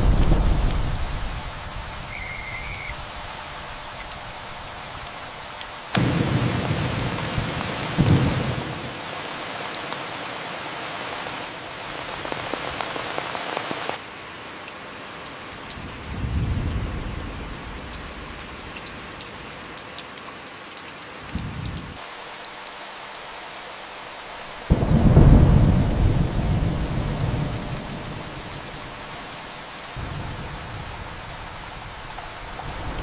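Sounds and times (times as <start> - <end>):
distant thunder rolls: 0.0 - 3.6, 5.9 - 9.0, 24.7 - 33.0
steady rain falling: 0.0 - 33.0.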